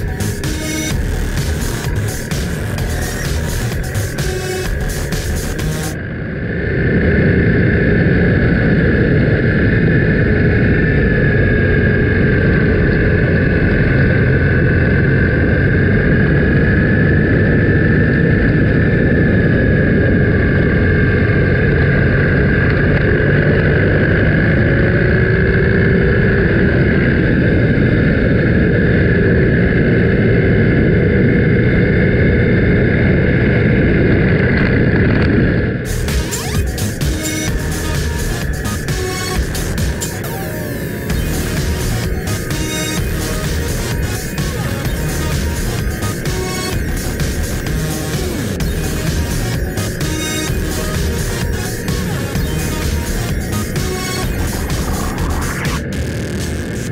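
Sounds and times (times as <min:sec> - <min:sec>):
motorcycle engine running: 0:00.0 - 0:06.0, 0:35.9 - 0:56.9
wind and road noise: 0:06.0 - 0:35.9.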